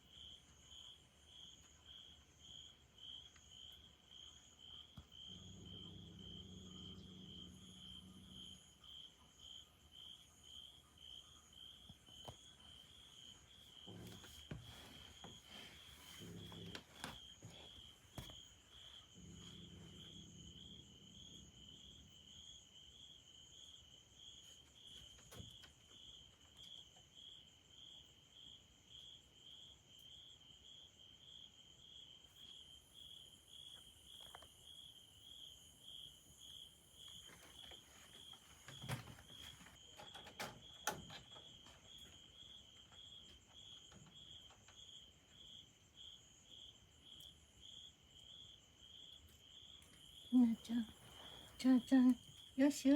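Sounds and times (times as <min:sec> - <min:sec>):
insect chirping: 0:00.0 - 0:52.9.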